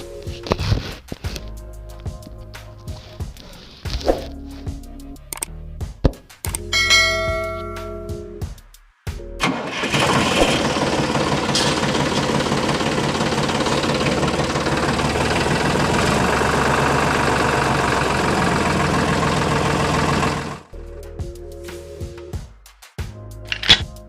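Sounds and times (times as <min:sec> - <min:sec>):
small motor knocking chug: 0:10.4 - 0:20.6.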